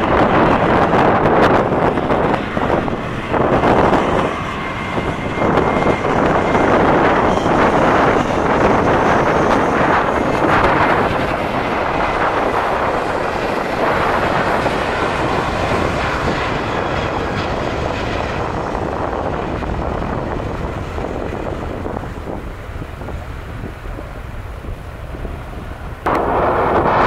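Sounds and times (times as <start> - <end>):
jet airliner engine rush: 0.0 - 27.0.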